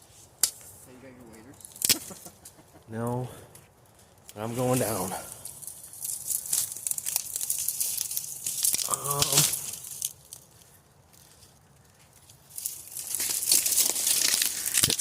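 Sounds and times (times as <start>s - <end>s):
footsteps crunching through dry brush: 3.6s - 15.0s.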